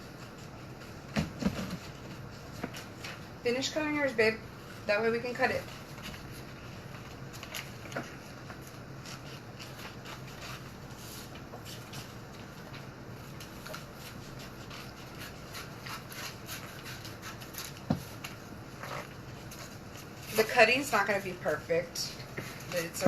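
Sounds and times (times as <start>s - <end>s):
paper rustling: 4.8s - 23.0s
scissors snipping paper: 13.4s - 20.8s.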